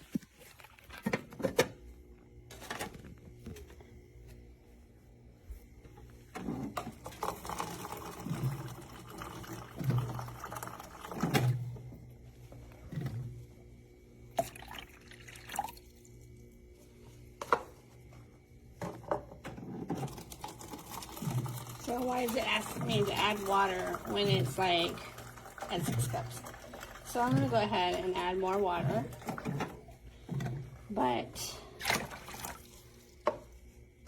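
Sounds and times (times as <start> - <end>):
water pouring in glugs: 6.7 - 11.7, 14.4 - 16.0, 20.0 - 30.8.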